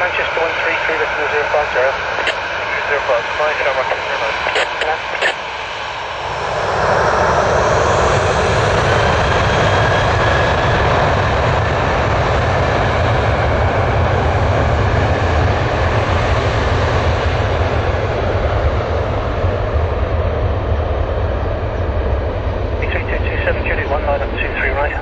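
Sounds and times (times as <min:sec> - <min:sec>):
faint whine: 0:00.0 - 0:05.5, 0:22.7 - 0:25.0
jet engines running: 0:00.0 - 0:25.0.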